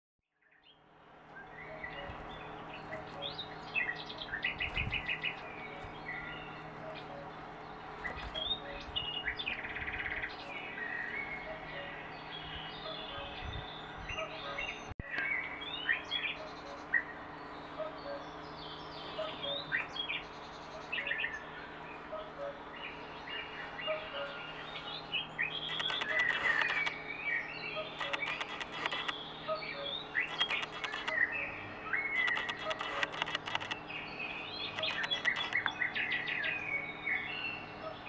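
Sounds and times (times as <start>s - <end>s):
small birds tweeting: 0.3s - 38.0s.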